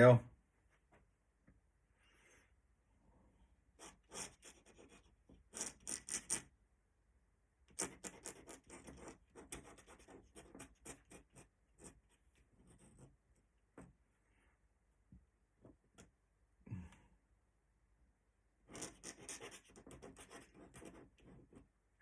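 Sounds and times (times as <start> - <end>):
pen scratching on paper: 3.8 - 6.5, 7.7 - 13.2, 18.7 - 21.6.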